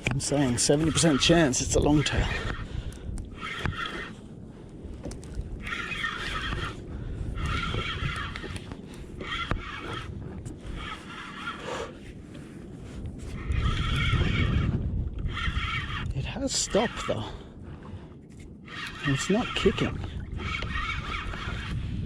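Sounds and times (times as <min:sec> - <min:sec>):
spinning reel being cranked: 0:00.4 - 0:02.6, 0:03.3 - 0:04.2, 0:05.0 - 0:12.0, 0:13.3 - 0:17.4, 0:18.7 - 0:22.0.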